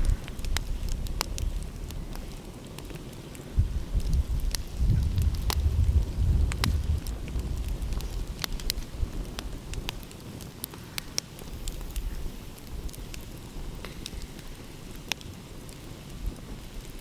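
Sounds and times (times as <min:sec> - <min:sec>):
wood fire crackling and popping: 0:00.0 - 0:17.0
low rumble: 0:03.6 - 0:09.1.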